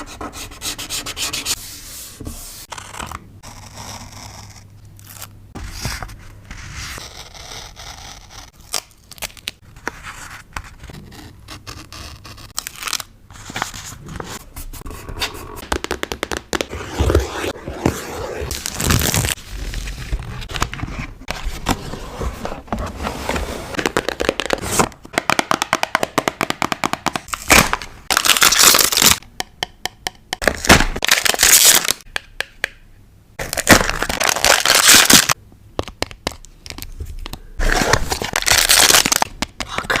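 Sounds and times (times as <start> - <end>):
paper peeling and tearing: 18.2 - 19.4.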